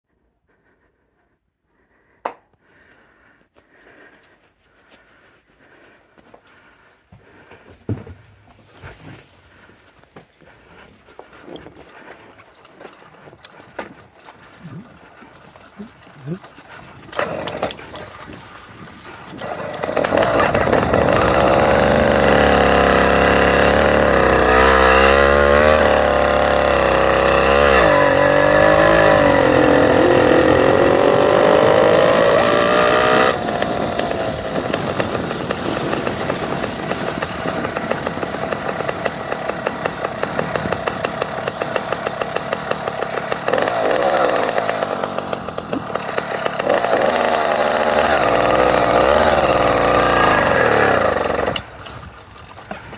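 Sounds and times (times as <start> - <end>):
motorcycle engine revving: 15.8 - 52.1.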